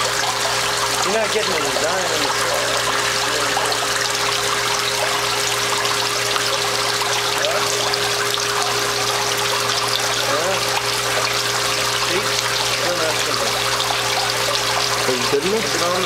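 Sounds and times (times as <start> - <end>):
water splashing into basin: 0.0 - 16.0.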